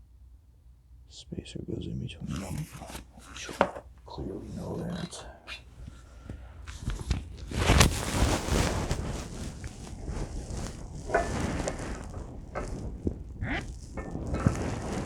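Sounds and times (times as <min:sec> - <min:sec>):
rustling: 0:02.0 - 0:15.0
noisy metal scrape: 0:07.5 - 0:15.0.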